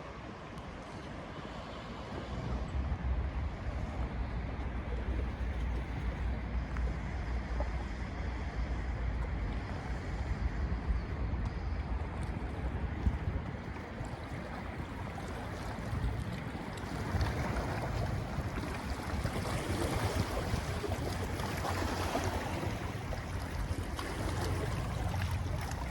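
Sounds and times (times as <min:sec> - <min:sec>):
wind buffeting microphone: 0:00.0 - 0:25.9
lake water hiss: 0:13.7 - 0:25.9.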